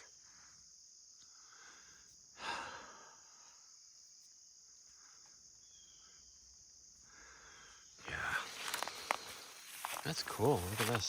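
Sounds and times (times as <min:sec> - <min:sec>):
breathy exhale: 0:01.3 - 0:03.6, 0:07.0 - 0:09.0.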